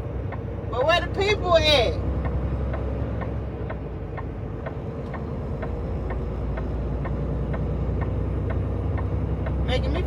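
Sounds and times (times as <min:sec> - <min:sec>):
diesel engine running: 0:00.0 - 0:10.0
turn signal clicking: 0:00.2 - 0:00.5, 0:02.1 - 0:10.0.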